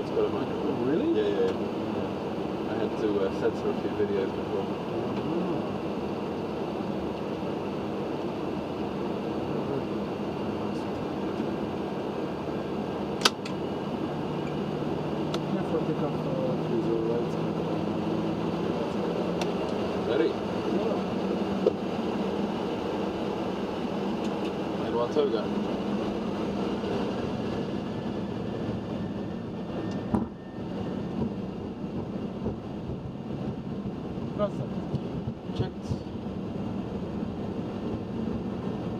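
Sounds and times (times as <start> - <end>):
cockpit air conditioning and engines hum: 0.0 - 38.9
wheels rumbling on runway: 0.0 - 38.9
sharp click: 13.2 - 13.6.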